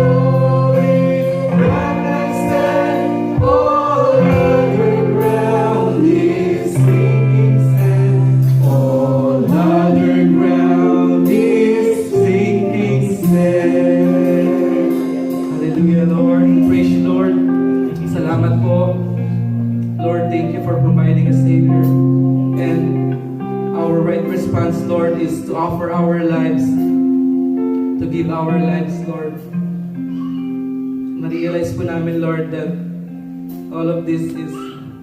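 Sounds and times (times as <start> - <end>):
congregation singing a hymn: 0.0 - 19.1
instrumental accompaniment: 0.0 - 35.0.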